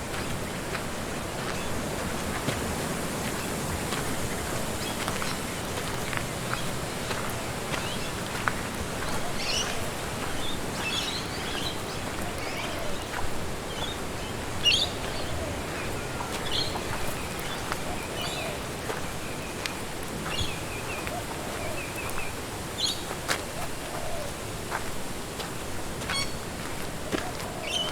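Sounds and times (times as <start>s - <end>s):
wind rushing through trees: 0.0s - 27.9s
small birds chirping: 3.3s - 23.2s.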